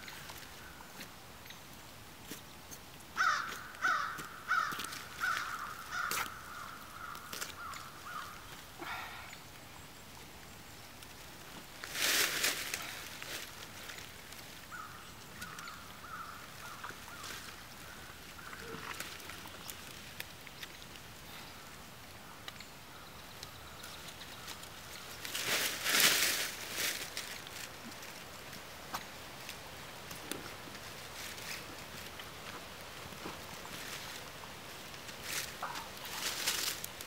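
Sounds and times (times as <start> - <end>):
dry leaves rustling: 0.0 - 9.1, 10.4 - 21.7, 22.9 - 37.0.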